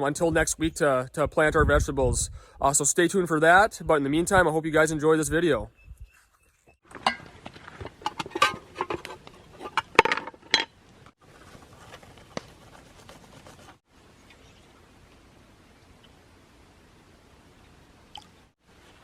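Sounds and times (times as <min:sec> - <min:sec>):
hard objects clinking and knocking: 0:06.9 - 0:10.8.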